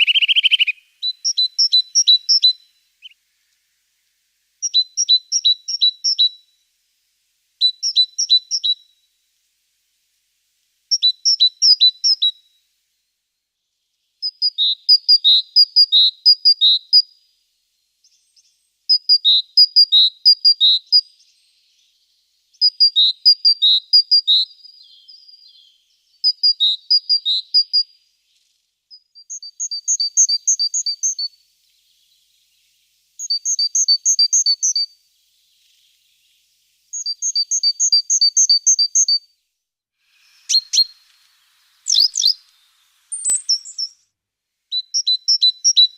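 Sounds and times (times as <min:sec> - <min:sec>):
bird singing two-note whistles: 0:00.0 - 0:03.2, 0:33.2 - 0:35.0, 0:36.9 - 0:39.3, 0:41.8 - 0:42.4, 0:43.1 - 0:44.1.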